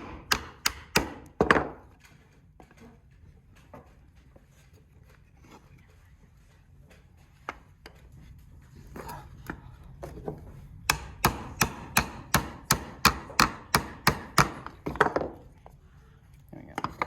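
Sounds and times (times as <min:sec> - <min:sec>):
hammer hitting nail into wood: 0:00.0 - 0:01.8, 0:10.9 - 0:15.2.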